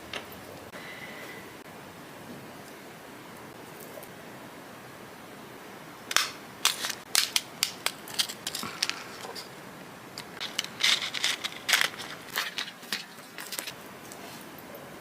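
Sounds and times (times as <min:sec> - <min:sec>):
gift box packaging crinkling: 0:10.2 - 0:13.7.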